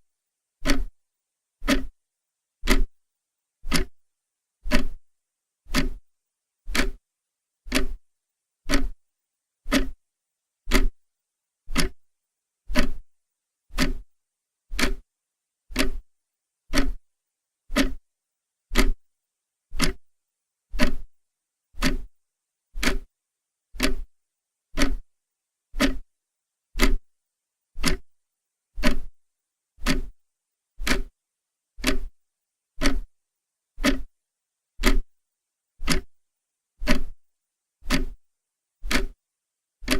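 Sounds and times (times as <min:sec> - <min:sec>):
clock ticking: 0:00.6 - 0:00.9, 0:01.6 - 0:01.9, 0:02.6 - 0:02.9, 0:03.7 - 0:04.0, 0:04.7 - 0:05.0, 0:05.7 - 0:06.0, 0:06.7 - 0:07.0, 0:07.7 - 0:08.0, 0:08.7 - 0:09.0, 0:09.7 - 0:10.0, 0:10.7 - 0:11.0, 0:11.7 - 0:12.1, 0:12.7 - 0:13.0, 0:13.7 - 0:14.0, 0:14.7 - 0:15.0, 0:15.7 - 0:16.0, 0:16.7 - 0:17.0, 0:17.7 - 0:18.0, 0:18.7 - 0:19.0, 0:19.8 - 0:20.0, 0:20.8 - 0:21.1, 0:21.8 - 0:22.1, 0:22.8 - 0:23.1, 0:23.8 - 0:24.1, 0:24.8 - 0:25.1, 0:25.8 - 0:26.0, 0:26.8 - 0:27.0, 0:27.8 - 0:28.1, 0:28.8 - 0:29.1, 0:29.8 - 0:30.1, 0:30.8 - 0:31.1, 0:31.8 - 0:32.2, 0:32.8 - 0:33.1, 0:33.8 - 0:34.1, 0:34.8 - 0:35.1, 0:35.8 - 0:36.2, 0:36.8 - 0:37.2, 0:37.8 - 0:38.2, 0:38.8 - 0:39.2.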